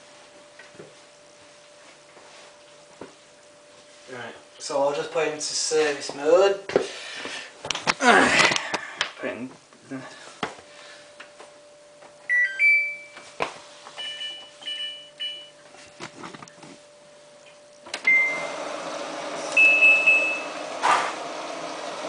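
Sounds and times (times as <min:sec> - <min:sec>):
washing machine beeping: 0:12.2 - 0:13.3, 0:13.9 - 0:15.6, 0:17.9 - 0:22.0.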